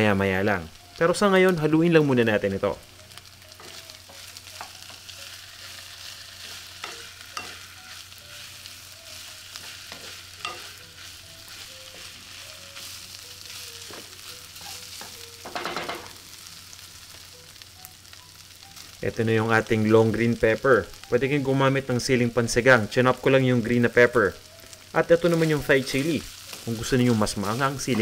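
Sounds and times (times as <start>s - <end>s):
pork sizzling in a pan: 0.0s - 28.0s
spatula scraping and tapping pan: 9.5s - 12.2s.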